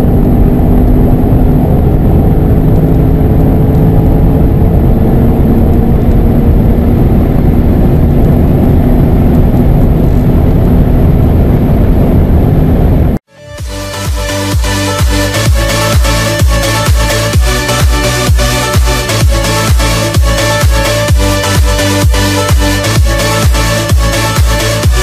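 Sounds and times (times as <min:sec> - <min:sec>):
wind noise: 0:00.0 - 0:13.2
loud engine drone: 0:00.0 - 0:25.0
road noise: 0:00.0 - 0:25.0
electronic music: 0:13.3 - 0:25.0.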